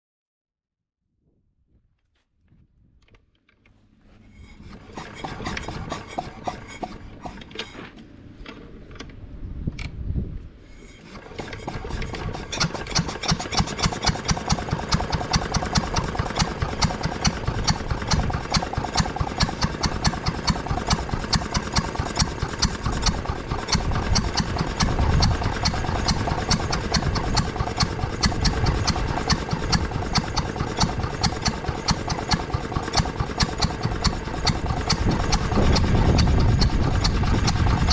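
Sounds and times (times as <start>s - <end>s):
rubbing and knocking: 4.2s - 7.8s, 11.0s - 37.9s
compressor engine running: 4.5s - 7.6s, 11.0s - 37.9s.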